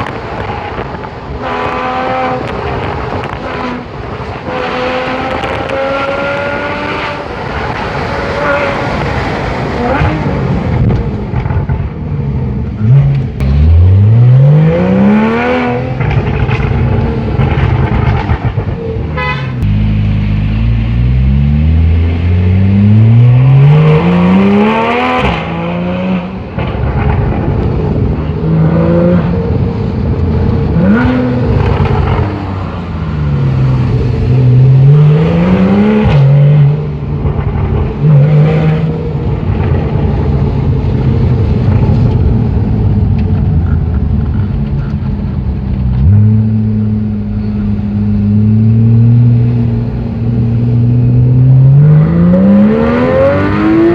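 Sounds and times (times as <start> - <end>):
sports car engine revving hard: 12.8 - 18.3, 47.9 - 53.9.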